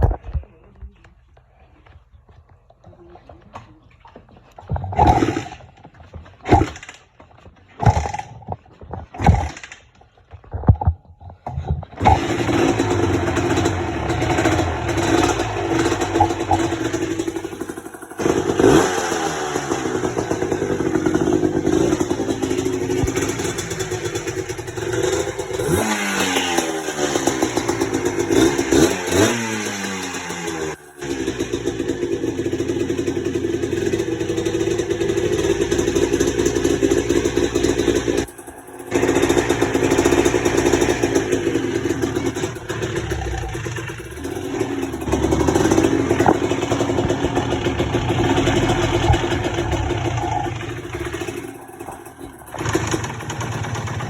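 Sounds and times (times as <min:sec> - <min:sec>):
dirt bike engine kick-started: 0:03.5 - 0:54.0
engine revving: 0:04.8 - 0:05.8, 0:12.0 - 0:54.0.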